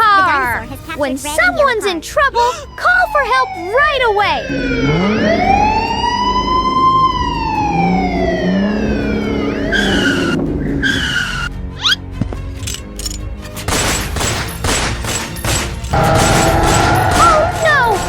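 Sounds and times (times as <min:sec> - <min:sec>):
background music: 0:00.0 - 0:18.0
siren wail: 0:02.2 - 0:11.5, 0:16.0 - 0:18.0
horn-like tones: 0:04.5 - 0:11.4, 0:16.0 - 0:18.0
crashing rattling noises: 0:13.5 - 0:18.0.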